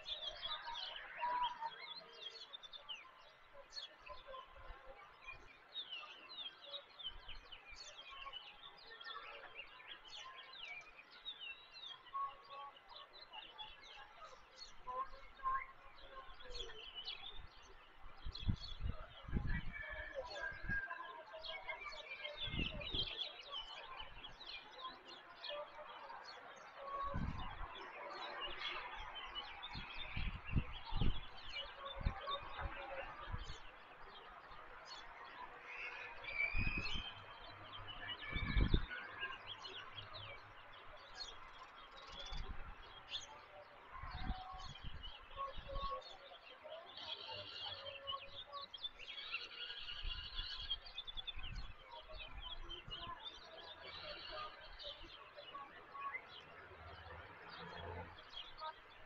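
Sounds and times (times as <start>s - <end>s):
small birds chirping: 0.0s - 59.0s
wind buffeting microphone: 14.6s - 20.8s, 22.4s - 24.4s, 26.9s - 35.4s, 36.2s - 39.4s, 42.0s - 43.2s, 43.9s - 46.0s, 49.8s - 53.4s.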